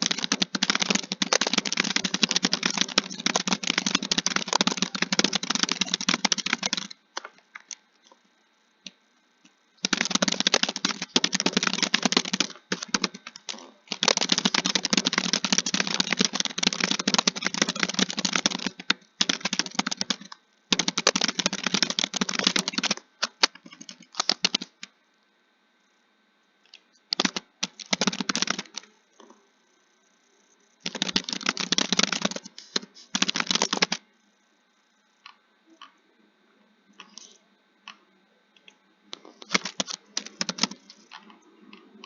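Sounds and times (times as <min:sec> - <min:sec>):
rapid typing key clicks: 0:00.0 - 0:07.8, 0:09.8 - 0:24.9, 0:27.0 - 0:28.9, 0:30.7 - 0:34.0, 0:39.4 - 0:41.9.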